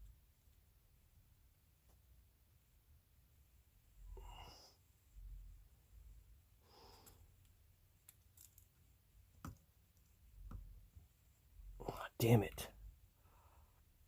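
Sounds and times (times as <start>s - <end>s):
faint breath: 4.0s - 4.8s, 6.6s - 7.4s, 13.2s - 14.0s.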